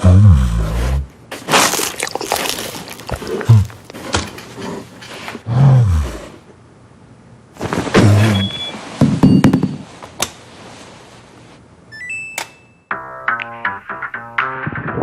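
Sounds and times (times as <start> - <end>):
bear growling and grunting: 0.0 - 6.4.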